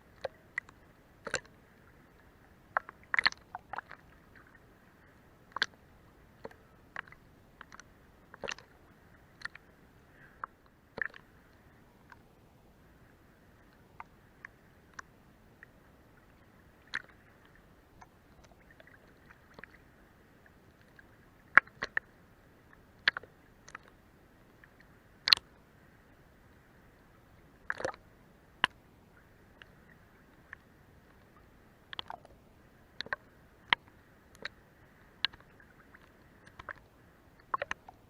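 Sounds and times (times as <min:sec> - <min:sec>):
faint hiss: 0:00.0 - 0:38.0
water lapping against boat hull: 0:00.0 - 0:38.0.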